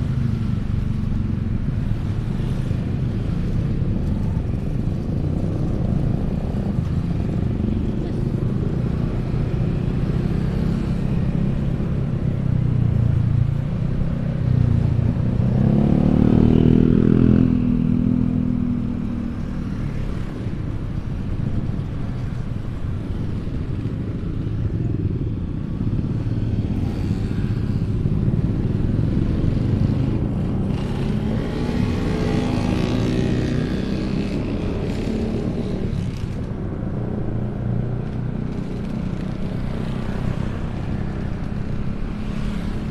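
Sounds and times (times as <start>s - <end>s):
motorcycle engines in traffic: 0.0s - 42.9s
motorcycle passing close: 14.6s - 20.1s, 26.4s - 42.9s.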